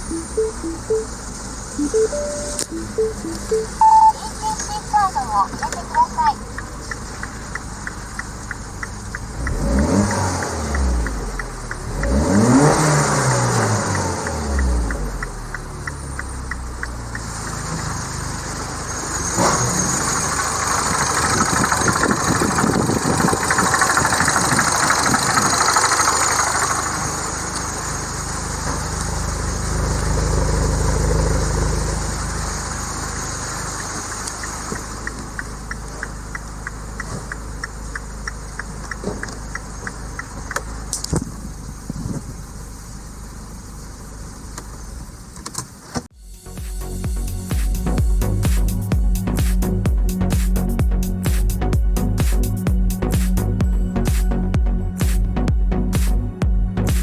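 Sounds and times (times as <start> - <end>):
car engine idling: 0.0 - 57.0
light regular ticking: 5.4 - 12.7, 13.5 - 17.5, 33.8 - 41.1.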